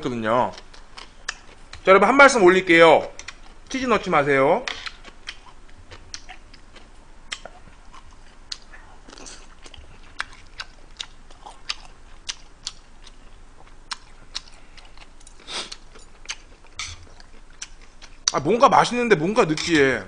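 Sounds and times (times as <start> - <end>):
person chewing with mouth clicks: 0.5 - 1.8, 3.1 - 3.8, 4.7 - 18.4.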